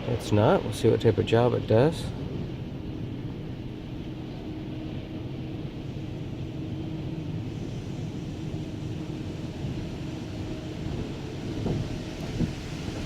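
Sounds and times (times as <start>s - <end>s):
low rumble and hum: 0.0s - 13.0s.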